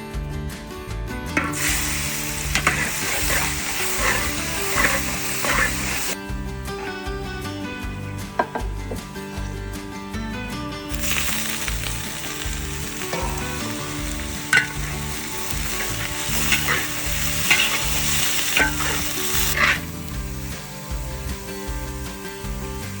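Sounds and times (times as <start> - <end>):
food deep-frying in hot oil: 1.4 - 6.2, 10.9 - 23.0.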